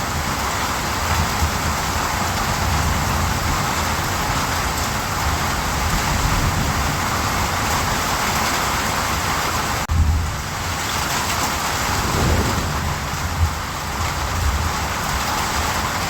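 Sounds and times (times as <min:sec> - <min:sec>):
steady rain hiss: 0:11.5 - 0:15.9
low rumble: 0:11.7 - 0:14.3.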